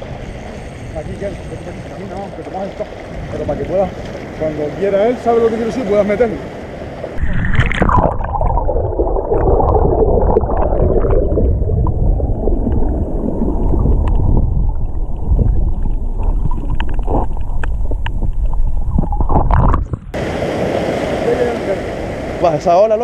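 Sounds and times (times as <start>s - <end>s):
underwater churning rumble: 7.2s - 20.6s.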